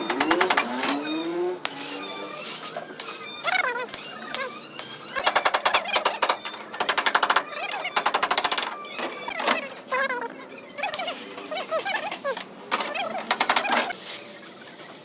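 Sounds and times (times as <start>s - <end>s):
rapid mechanical tapping: 0.0s - 2.0s, 2.6s - 8.8s, 13.2s - 14.0s.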